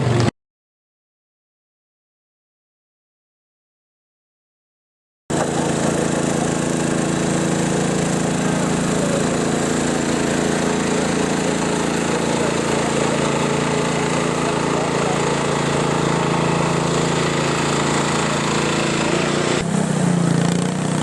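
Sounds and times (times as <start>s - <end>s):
tractor engine running: 5.3s - 21.0s.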